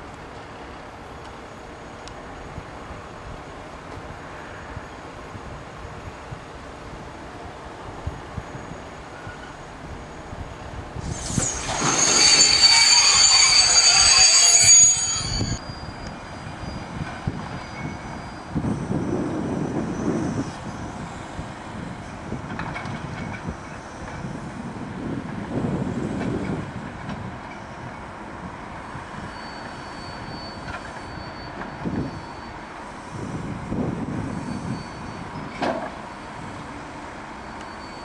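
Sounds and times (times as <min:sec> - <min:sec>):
freight train rumbling: 0:00.0 - 0:38.0
high-pitched wheel squeal: 0:11.0 - 0:21.1, 0:29.2 - 0:33.4, 0:34.1 - 0:36.6, 0:37.4 - 0:38.0.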